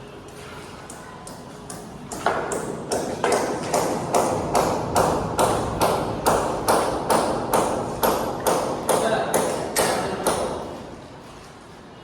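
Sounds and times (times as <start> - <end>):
hammer strikes: 1.3 - 10.8.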